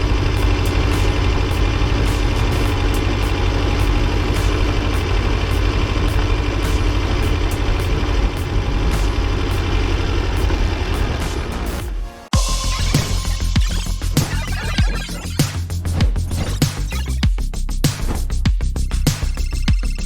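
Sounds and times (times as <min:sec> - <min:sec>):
tractor diesel engine running: 0:00.0 - 0:11.5.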